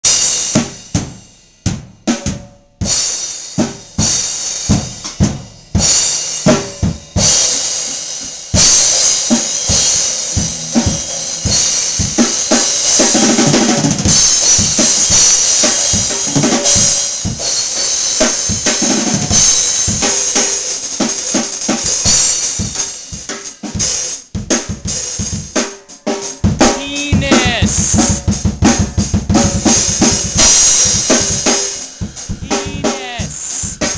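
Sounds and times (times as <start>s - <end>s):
drum kit playing: 0.0s - 33.9s
fast roll of low drums: 26.4s - 33.9s
cymbals: 29.7s - 33.9s.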